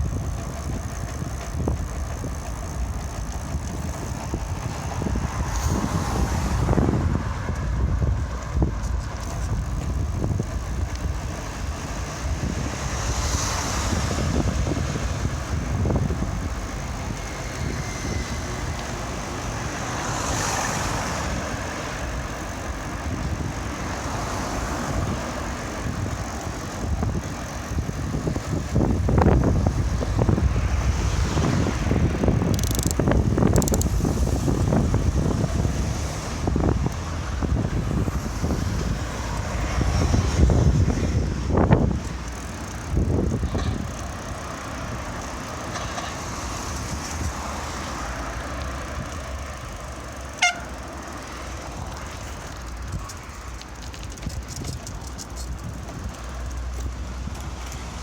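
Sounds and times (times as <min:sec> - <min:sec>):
wind buffeting microphone: 0:00.0 - 0:50.3, 0:51.2 - 0:58.0
road traffic: 0:00.0 - 0:58.0
sharp click: 0:32.5 - 0:34.0.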